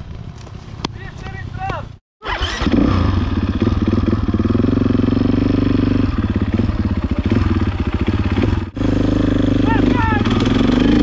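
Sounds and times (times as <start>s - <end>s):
dirt bike engine idling: 3.1s - 11.0s.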